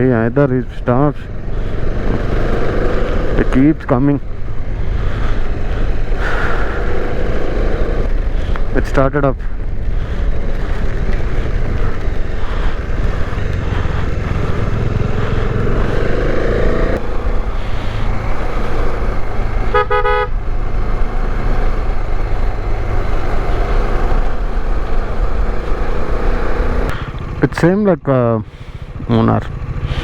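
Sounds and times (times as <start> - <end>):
motorcycle running: 0.0 - 30.0
motorcycle horn toot: 19.7 - 20.4.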